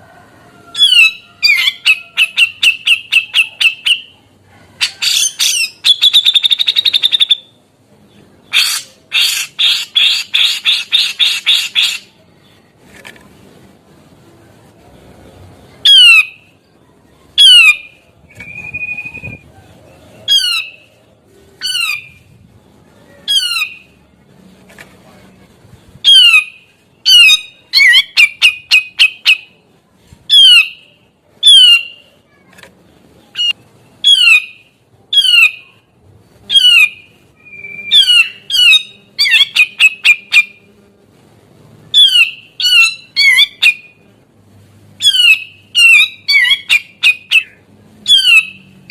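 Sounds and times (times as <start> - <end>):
bird whistle: 5.0 - 7.5, 17.4 - 19.4, 30.3 - 30.8, 31.4 - 32.0, 36.5 - 40.6, 41.9 - 43.9, 45.0 - 48.6
bird calling loudly: 8.5 - 12.1.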